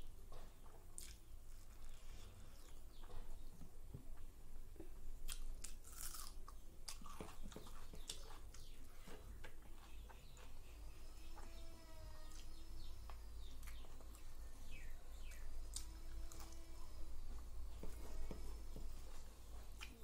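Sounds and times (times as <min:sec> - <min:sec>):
chewing with crunching clicks: 0:00.3 - 0:03.3, 0:05.2 - 0:10.6, 0:13.1 - 0:14.3.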